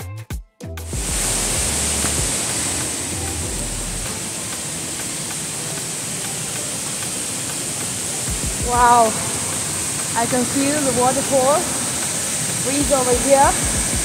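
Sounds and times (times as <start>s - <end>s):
waterfall rushing: 0.9s - 14.0s.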